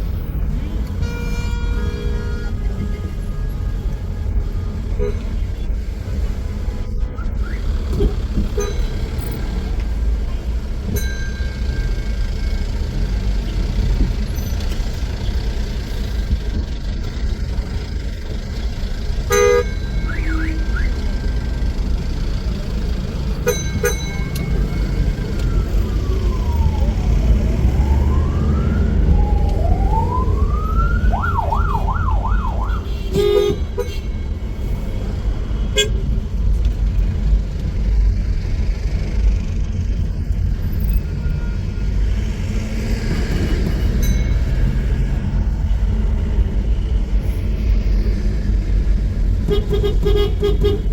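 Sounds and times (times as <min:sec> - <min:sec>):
street traffic rumble: 0:00.0 - 0:50.9
car horns tooting: 0:00.6 - 0:05.7, 0:19.2 - 0:21.1, 0:23.3 - 0:25.1, 0:32.6 - 0:34.4, 0:35.6 - 0:36.1, 0:49.4 - 0:50.9
emergency vehicle siren: 0:24.1 - 0:33.3.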